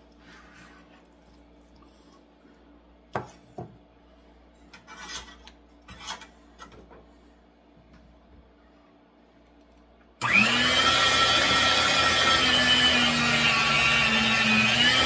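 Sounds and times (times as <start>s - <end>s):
knife scraping strokes: 4.7s - 6.3s.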